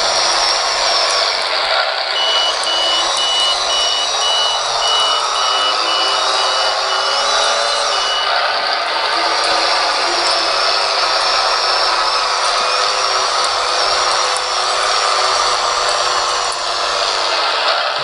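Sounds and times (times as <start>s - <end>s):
drive motors whining: 0.0s - 18.0s
simulated diesel engine sound: 0.0s - 18.0s
reverse alarm beeping: 2.1s - 15.9s.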